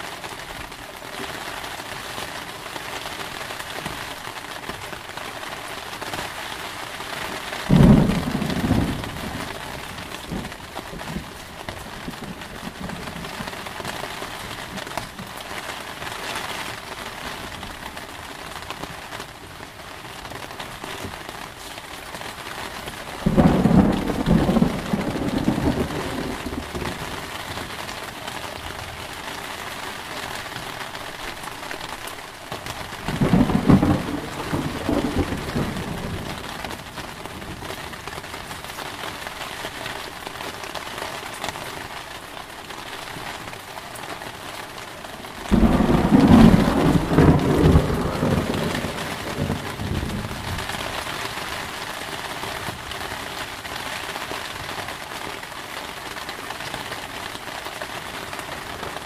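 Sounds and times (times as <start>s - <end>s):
heavy rain: 0.0s - 59.0s
thunder claps rumbling: 7.7s - 13.7s, 23.2s - 27.3s, 32.8s - 37.7s, 45.5s - 51.1s.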